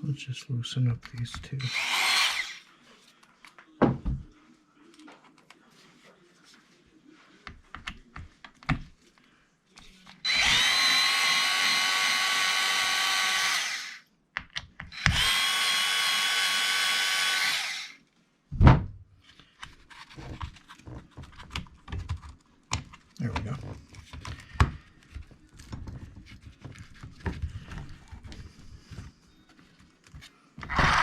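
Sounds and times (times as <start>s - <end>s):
electric screwdriver motor whine: 1.7s - 2.6s, 10.3s - 14.0s, 14.9s - 18.0s, 30.7s - 31.0s
loud thump: 18.6s - 19.0s.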